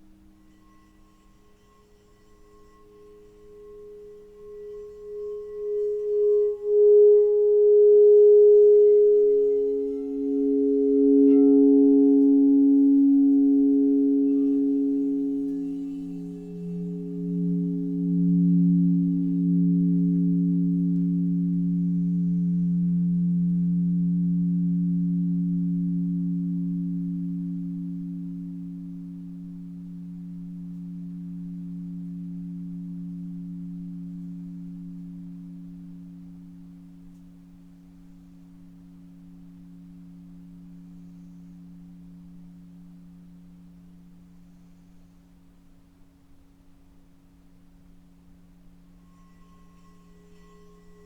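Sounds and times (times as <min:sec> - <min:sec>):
low pure tone: 0:00.0 - 0:51.0
singing bowls ringing: 0:00.0 - 0:51.0
higher pure tone: 0:02.3 - 0:44.5.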